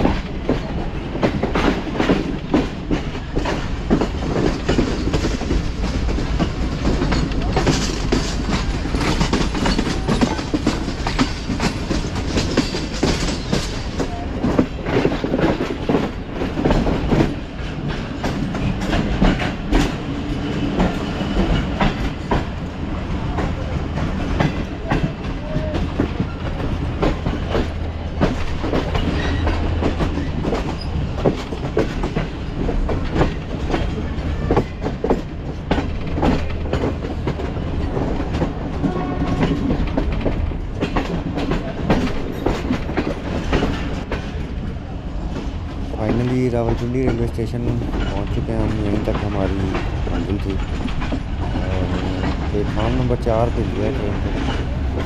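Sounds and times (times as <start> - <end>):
train rumbling on track: 0.0 - 55.0
wheels clicking over rails: 0.0 - 55.0.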